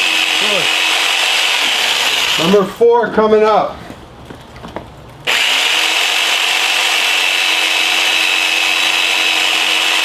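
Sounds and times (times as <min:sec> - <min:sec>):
electric jigsaw sawing: 0:00.0 - 0:02.5, 0:05.3 - 0:10.0.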